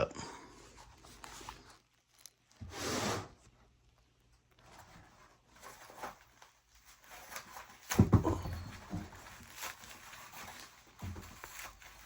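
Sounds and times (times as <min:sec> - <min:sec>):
dry peat moss rustling: 0:01.0 - 0:02.6
scraping and crumbling: 0:04.6 - 0:12.0.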